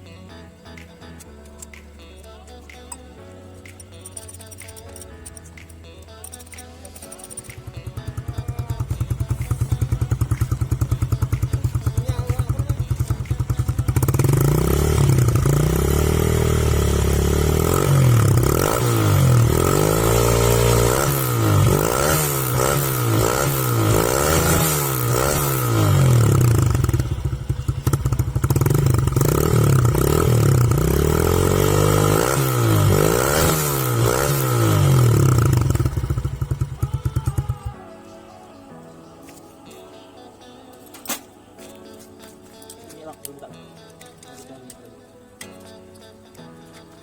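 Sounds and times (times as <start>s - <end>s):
motorcycle engine revving: 6.9s - 37.8s.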